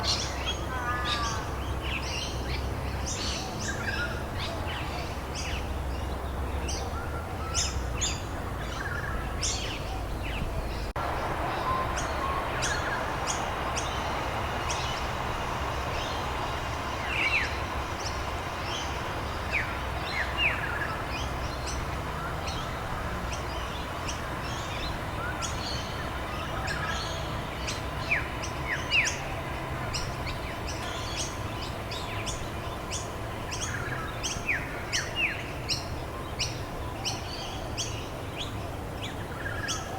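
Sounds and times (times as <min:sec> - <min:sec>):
birds chirping: 0:00.0 - 0:39.9
rain hissing: 0:10.9 - 0:33.6.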